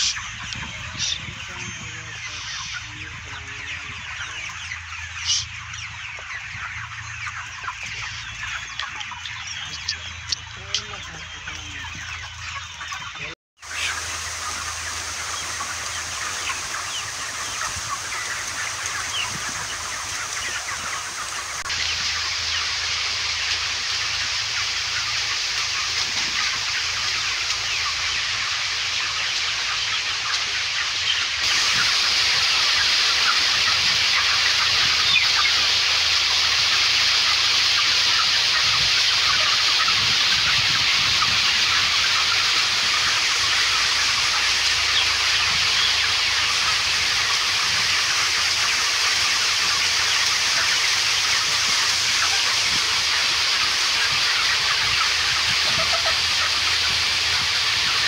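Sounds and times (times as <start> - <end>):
flock of chickens chattering: 0.0 - 58.0.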